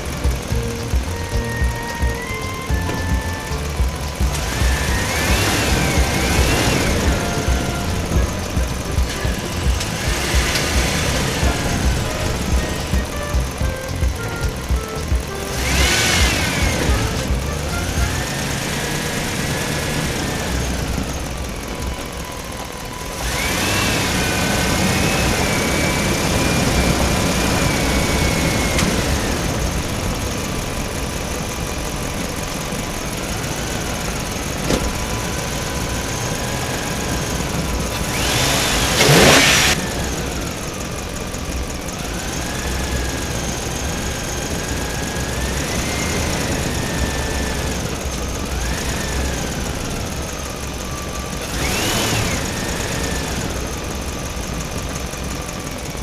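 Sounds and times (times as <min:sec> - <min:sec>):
engine running with wavering whine: 0:00.0 - 0:56.0.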